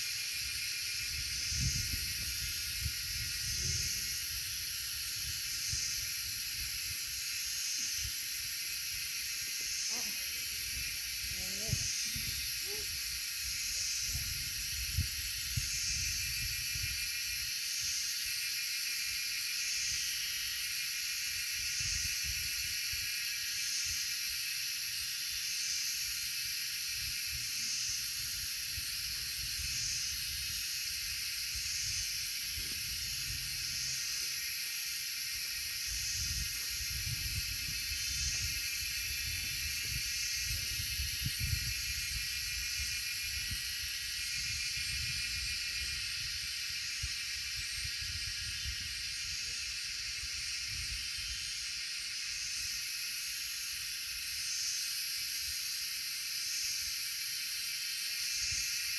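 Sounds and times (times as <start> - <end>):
high-pitched insect buzz: 0.0 - 58.9
wind on microphone: 1.0 - 7.0, 9.9 - 17.1, 35.9 - 49.5.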